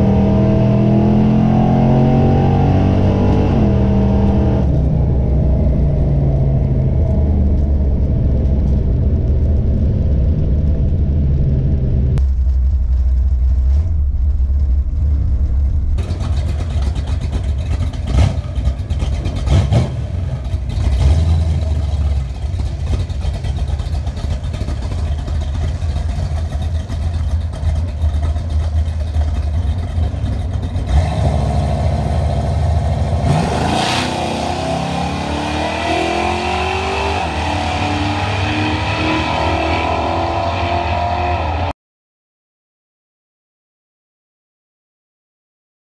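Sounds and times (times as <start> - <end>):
car engine revving: 0.0 - 41.7
car engine idling: 4.7 - 33.4.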